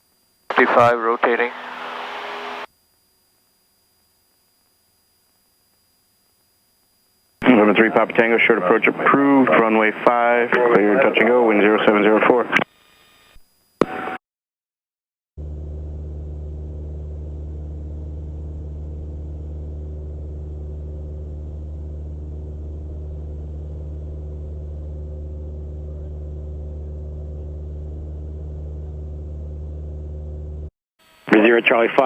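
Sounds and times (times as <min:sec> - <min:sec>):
propeller plane engine droning: 0:07.4 - 0:12.4, 0:15.4 - 0:30.7.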